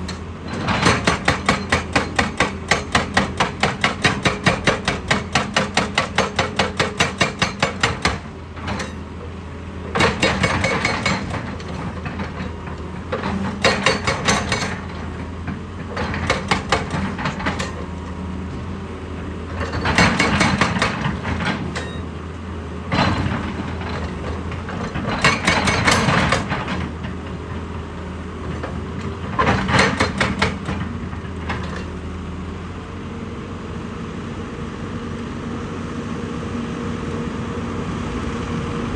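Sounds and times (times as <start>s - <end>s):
diesel engine running: 0.0s - 38.9s
hydraulic hammer pounding rock: 0.1s - 9.0s, 9.8s - 18.1s, 19.5s - 22.0s, 22.9s - 27.6s, 28.4s - 31.9s.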